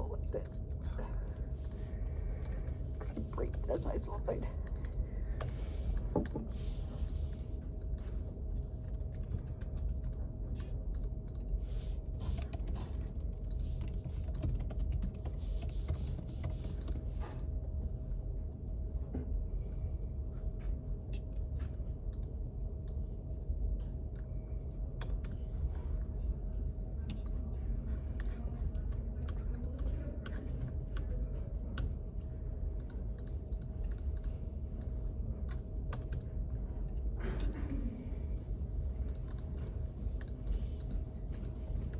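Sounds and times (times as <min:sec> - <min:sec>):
faint hum: 0:00.0 - 0:41.9
low room rumble: 0:00.0 - 0:41.9
typing on computer keyboard: 0:12.2 - 0:17.4, 0:25.0 - 0:25.7, 0:28.2 - 0:32.0, 0:32.7 - 0:36.4, 0:39.0 - 0:41.9.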